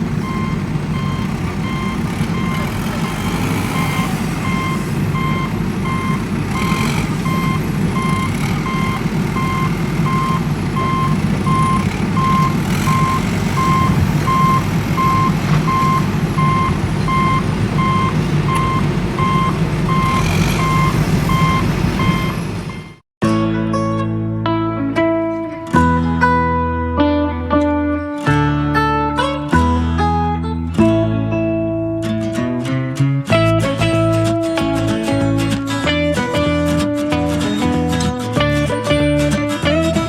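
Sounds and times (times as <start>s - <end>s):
reversing alarm beeping: 0.0s - 23.0s
vehicle engine running: 0.0s - 23.0s.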